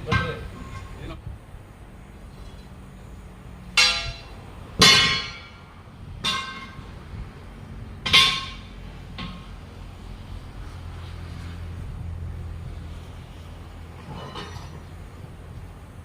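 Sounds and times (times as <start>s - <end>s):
hammer clanging on steel: 3.8s - 7.0s, 8.0s - 9.6s.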